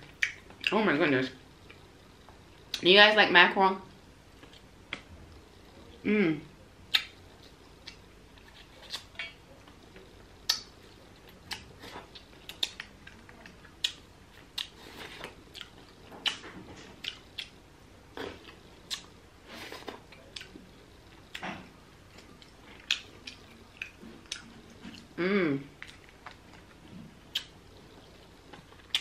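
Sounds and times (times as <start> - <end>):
person chewing: 6.9 - 21.4, 22.0 - 29.0.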